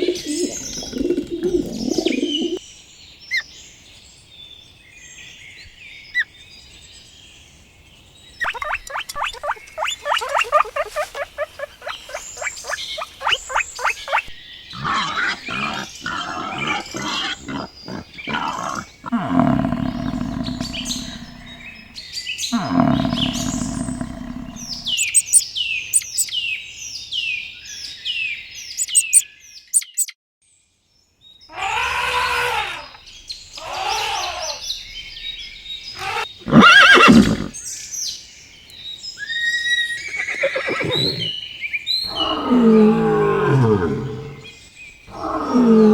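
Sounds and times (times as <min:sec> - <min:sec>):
long low animal calls: 0:08.4 - 0:25.4, 0:31.5 - 0:33.0, 0:33.6 - 0:34.7, 0:36.0 - 0:37.6, 0:39.7 - 0:41.4, 0:42.0 - 0:45.9
whinny-like animal calls: 0:08.4 - 0:25.4, 0:31.5 - 0:33.0, 0:33.6 - 0:34.7, 0:36.0 - 0:37.6, 0:39.2 - 0:41.4, 0:42.0 - 0:45.9
faint animal chirping: 0:08.4 - 0:26.3, 0:28.8 - 0:29.2, 0:29.8 - 0:30.1, 0:36.0 - 0:36.4
fast chattering animal calls: 0:08.4 - 0:26.3, 0:28.8 - 0:29.2, 0:36.0 - 0:37.6, 0:45.1 - 0:45.9.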